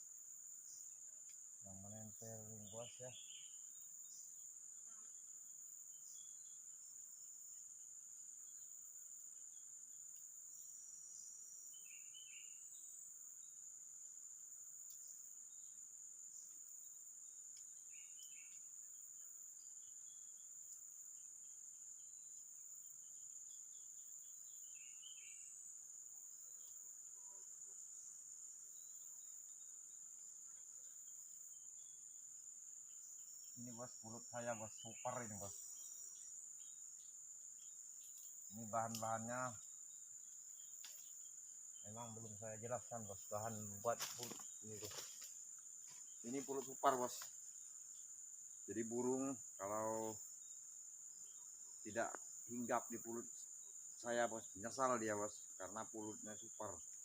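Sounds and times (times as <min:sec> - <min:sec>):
crickets droning: 0:00.0 - 0:57.0
bird chirps: 0:01.7 - 0:04.3, 0:17.9 - 0:18.6, 0:23.5 - 0:25.6.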